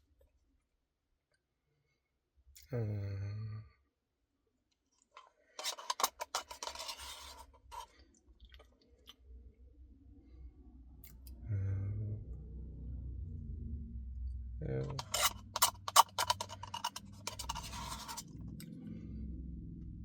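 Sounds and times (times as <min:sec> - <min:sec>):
scratchy clicking and crinkling: 0:05.0 - 0:08.0, 0:14.9 - 0:18.6
man humming: 0:11.4 - 0:12.2.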